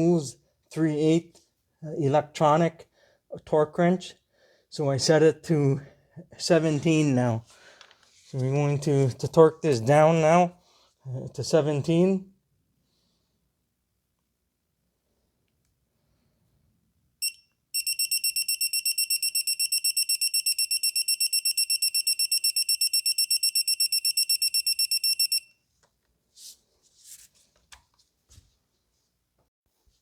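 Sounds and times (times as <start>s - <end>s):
torque wrench beeping: 17.2s - 25.5s.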